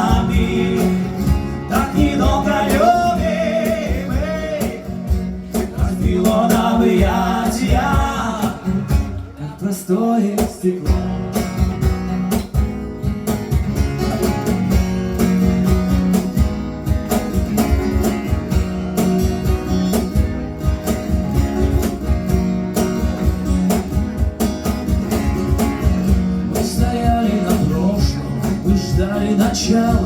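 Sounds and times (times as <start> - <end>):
acoustic guitar playing: 0.0 - 30.0
cajon beat: 0.0 - 30.0.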